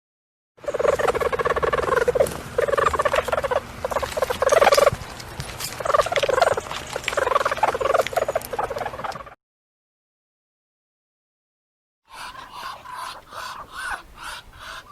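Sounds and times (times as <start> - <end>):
stoat chattering calls: 0.6 - 9.4, 12.1 - 14.9.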